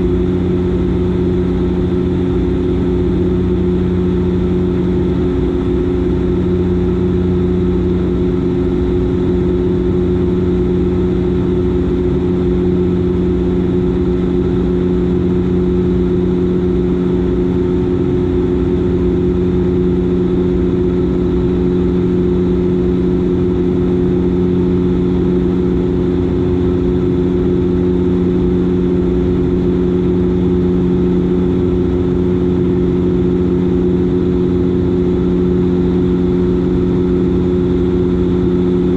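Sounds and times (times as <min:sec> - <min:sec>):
propeller engine droning: 0:00.0 - 0:38.9.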